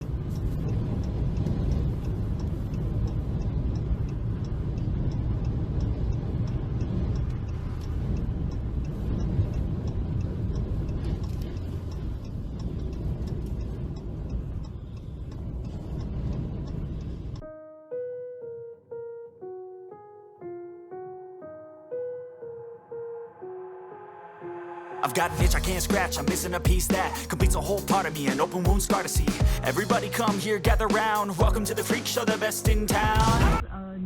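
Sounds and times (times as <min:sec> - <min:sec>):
car engine and road noise: 0:00.0 - 0:17.4
faint ticking: 0:00.0 - 0:19.2, 0:25.2 - 0:33.5.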